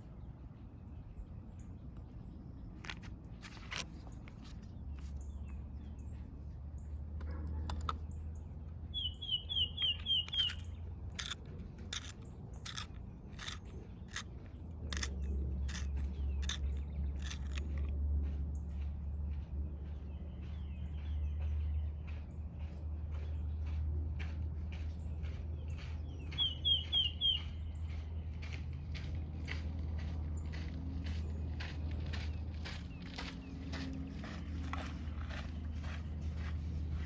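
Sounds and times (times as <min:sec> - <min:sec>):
bird chirping: 0:07.9 - 0:17.9, 0:24.8 - 0:28.6.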